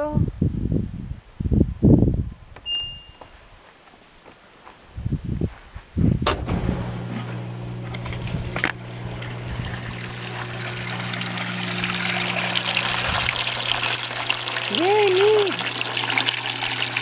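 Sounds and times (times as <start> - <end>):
drain pump humming: 6.2 - 17.0
water trickling through drain: 7.6 - 17.0.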